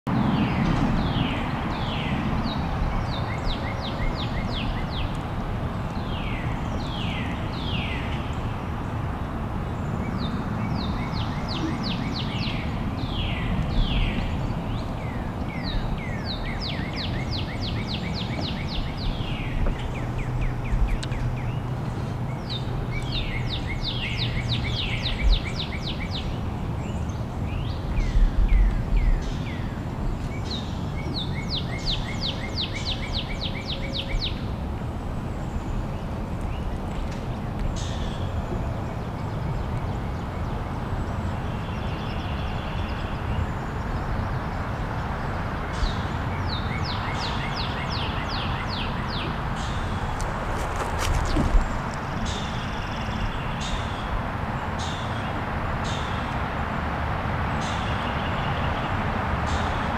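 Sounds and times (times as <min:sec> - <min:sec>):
birds chirping: 0:00.1 - 0:56.6
low bumps: 0:49.2 - 0:52.6.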